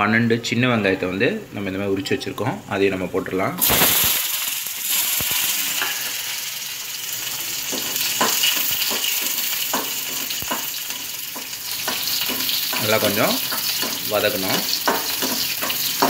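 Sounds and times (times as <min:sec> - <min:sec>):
shallots sizzling in hot oil: 0:03.6 - 0:16.0
spoon scraping a pan: 0:07.7 - 0:16.0.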